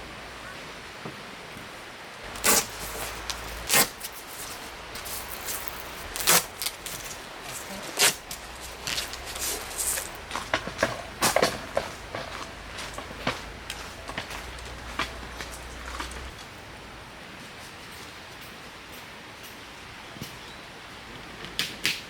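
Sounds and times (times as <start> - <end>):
gear knocking and clacking: 2.3 - 16.4.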